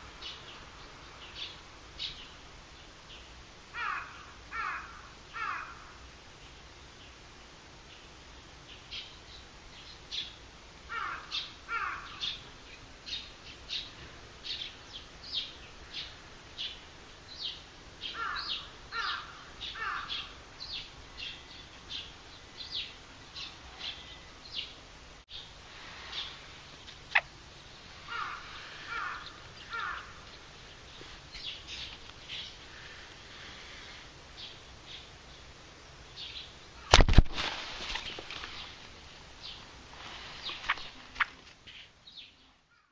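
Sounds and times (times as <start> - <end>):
birds chirping: 0.0 - 7.2, 7.9 - 42.9
harsh bird calls: 3.1 - 6.0, 9.8 - 35.5
sharp click: 36.9 - 37.4.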